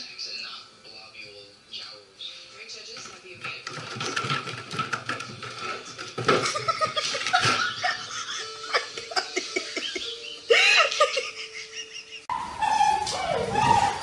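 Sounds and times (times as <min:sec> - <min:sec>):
music playing: 0:04.7 - 0:12.4
people laughing: 0:06.4 - 0:12.3.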